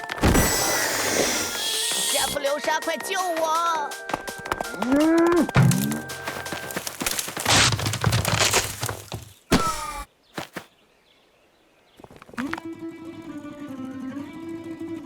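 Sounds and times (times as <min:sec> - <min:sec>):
short thumps: 0:05.4 - 0:10.1
cartoon thuds and clattering: 0:05.5 - 0:10.0.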